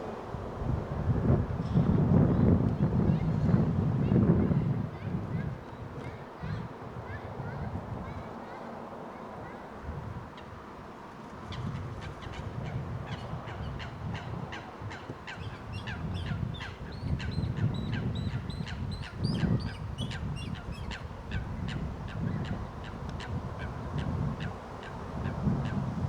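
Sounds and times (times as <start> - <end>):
birds calling: 11.5 - 25.0.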